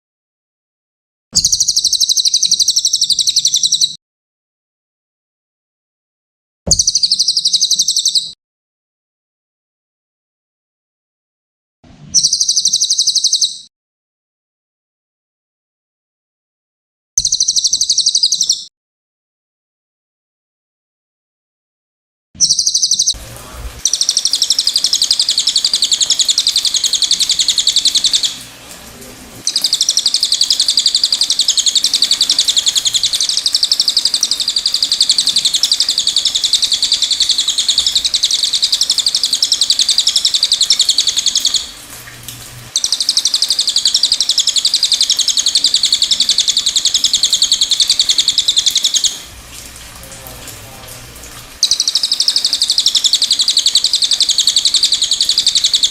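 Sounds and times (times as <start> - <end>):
songbird twittering: 1.4 - 4.0, 6.7 - 8.4, 12.2 - 13.7, 17.2 - 18.7, 22.4 - 23.2, 23.8 - 28.4, 29.4 - 41.8, 42.7 - 49.3, 51.6 - 55.9.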